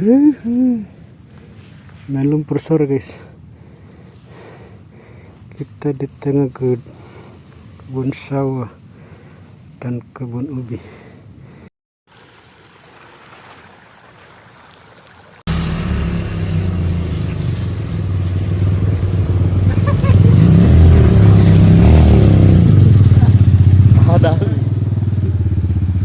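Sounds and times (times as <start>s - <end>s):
motorcycle engine revving: 15.5s - 26.0s.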